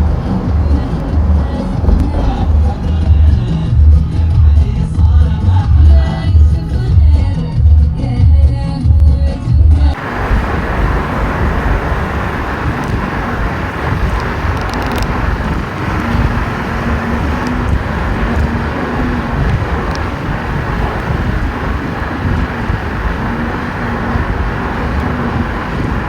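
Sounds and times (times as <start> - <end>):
music: 0.0 - 10.0
car road and wind noise: 0.0 - 26.0.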